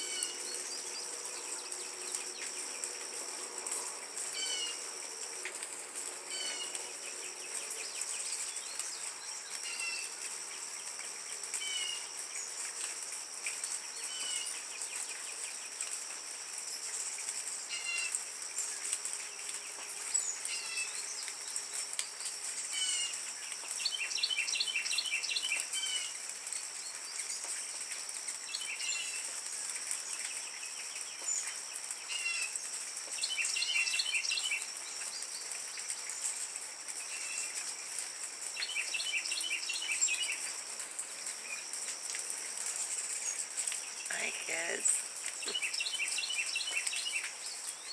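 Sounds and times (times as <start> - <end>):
hummingbirds chittering: 42.4 - 47.3.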